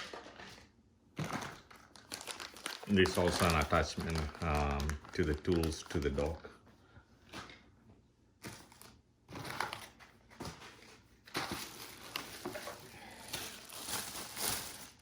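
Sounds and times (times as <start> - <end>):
plastic parts rustling and crinkling: 0.0 - 6.5, 8.4 - 15.0.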